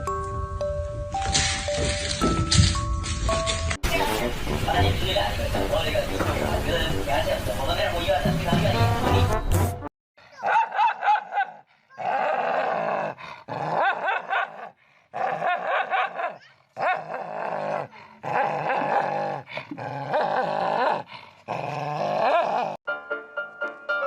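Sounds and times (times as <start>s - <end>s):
dog making growly calls: 12.0s - 22.8s.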